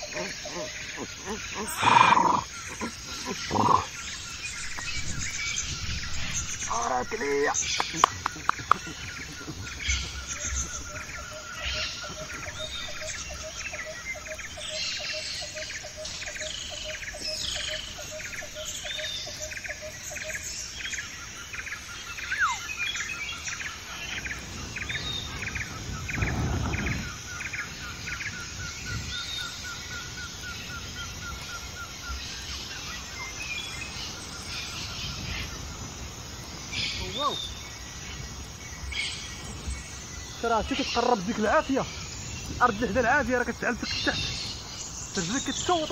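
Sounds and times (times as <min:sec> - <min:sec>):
birds trilling and chirping: 0:00.0 - 0:45.9.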